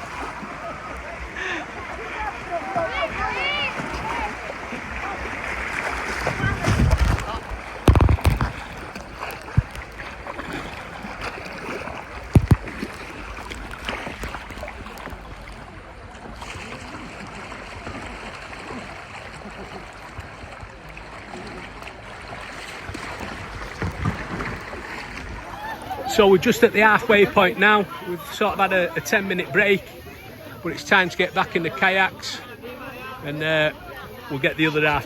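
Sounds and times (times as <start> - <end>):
river water rushing: 0.0 - 35.0
sharp knocks: 7.8 - 9.9, 12.4 - 12.8.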